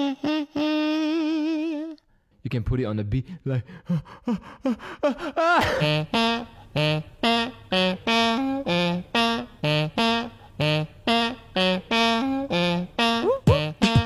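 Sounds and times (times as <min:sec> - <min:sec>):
beatboxer imitating saxophone: 0:00.0 - 0:02.0, 0:05.0 - 0:14.0.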